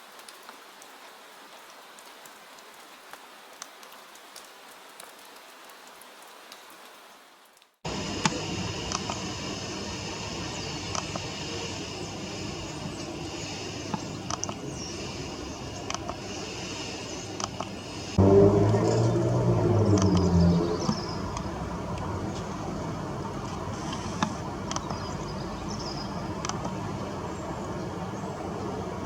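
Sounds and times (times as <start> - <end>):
soft rain pattering: 0.0 - 29.0
high hiss: 7.9 - 28.9
small clicks: 13.8 - 14.6, 17.3 - 17.8, 23.4 - 25.1
low rumble: 17.7 - 29.0.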